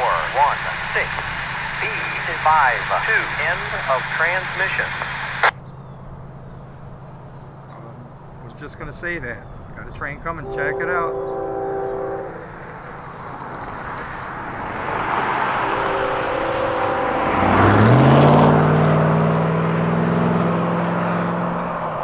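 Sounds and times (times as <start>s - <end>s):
locomotive engine note: 0.0s - 22.0s
train rumble: 0.0s - 22.0s
locomotive air horn: 10.4s - 13.1s, 14.8s - 19.5s.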